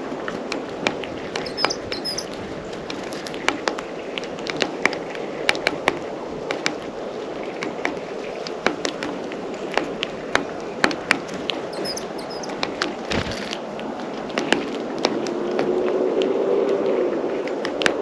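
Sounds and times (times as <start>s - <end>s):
faint high bird chirps: 1.4s - 2.3s, 11.7s - 12.6s.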